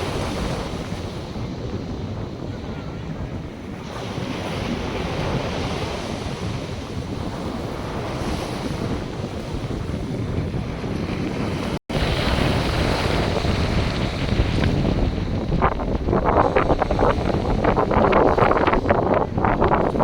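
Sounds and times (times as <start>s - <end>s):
wind buffeting microphone: 0.0s - 20.0s
surf washing onto beach: 3.7s - 20.0s.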